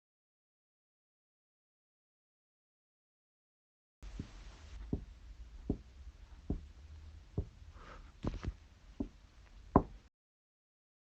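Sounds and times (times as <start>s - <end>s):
dull muffled thumps: 4.0s - 6.7s
steady low hum: 4.0s - 10.1s.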